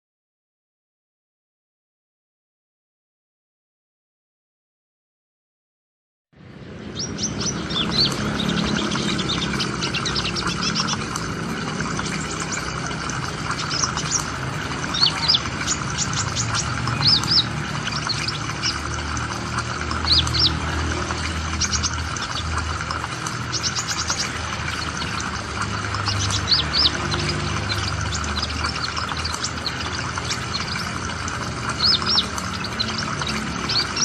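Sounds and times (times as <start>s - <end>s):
small bird chirping: 6.9s - 34.0s.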